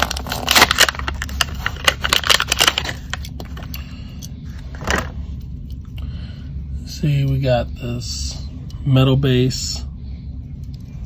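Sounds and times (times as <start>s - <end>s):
plastic packaging crinkling: 0.0s - 3.8s.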